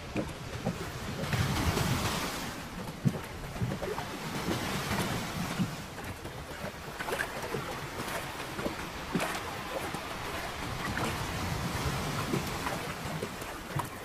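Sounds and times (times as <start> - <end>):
knocks on boat: 0.0 - 10.0
water sloshing against boat: 0.0 - 14.0
wind on microphone: 0.0 - 14.0.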